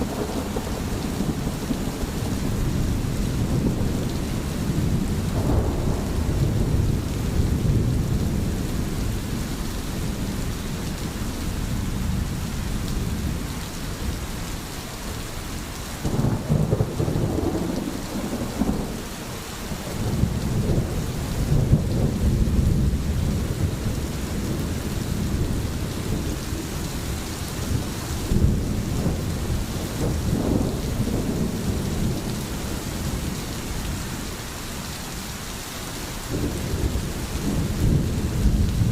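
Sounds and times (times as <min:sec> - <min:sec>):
low rolling thunder: 0:00.0 - 0:14.5, 0:16.0 - 0:34.4, 0:36.3 - 0:38.9
steady rain: 0:00.0 - 0:38.9.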